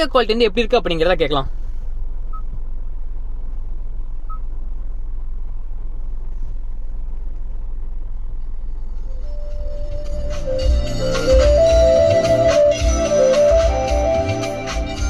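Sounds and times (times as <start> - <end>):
car engine idling hum: 0.0 - 15.0
music from car speakers: 8.6 - 15.0.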